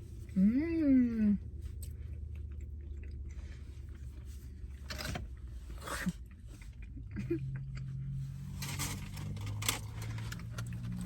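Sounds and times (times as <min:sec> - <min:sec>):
low steady hum inside a car: 0:00.0 - 0:11.0
chewing and mouth sounds: 0:01.4 - 0:08.1.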